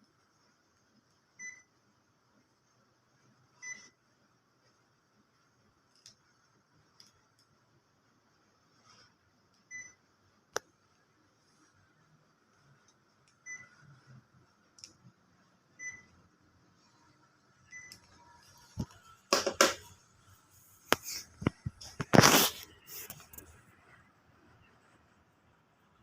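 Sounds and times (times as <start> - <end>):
air conditioner short beeps: 1.4 - 1.7, 3.6 - 4.0, 9.7 - 10.0, 13.4 - 13.9, 15.7 - 16.2, 17.6 - 18.0
noisy knocks: 19.3 - 19.9.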